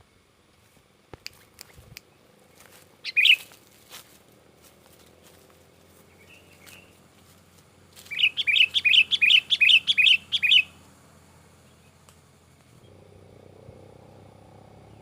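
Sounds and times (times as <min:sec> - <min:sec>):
bird chattering call: 0:03.0 - 0:03.5, 0:08.0 - 0:10.8.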